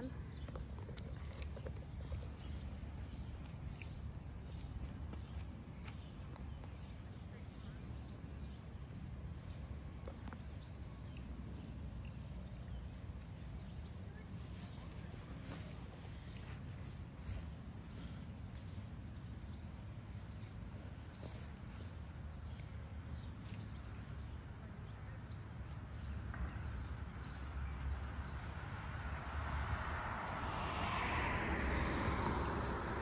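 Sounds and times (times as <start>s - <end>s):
steady low rumble: 13.9s - 23.1s
car passing on street: 14.2s - 22.0s, 28.0s - 33.0s.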